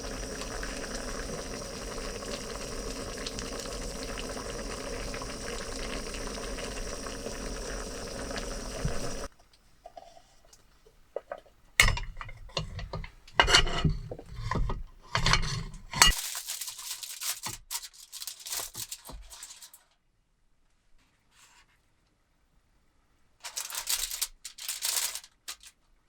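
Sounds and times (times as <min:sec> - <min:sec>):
cookware and utensils clinking: 0:11.2 - 0:16.3
rustling noise: 0:23.4 - 0:25.9.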